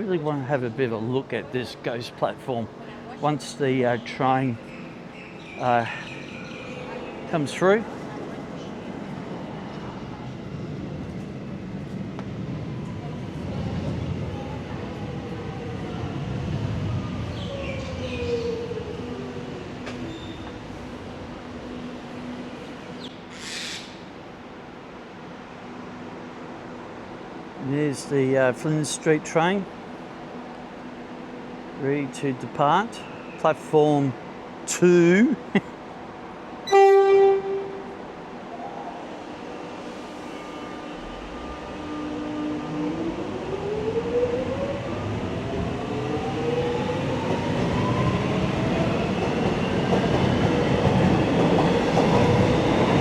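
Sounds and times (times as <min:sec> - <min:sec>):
electric train rumble and whine: 0:00.0 - 0:23.3, 0:24.0 - 0:53.0
train horn toot: 0:36.6 - 0:38.1.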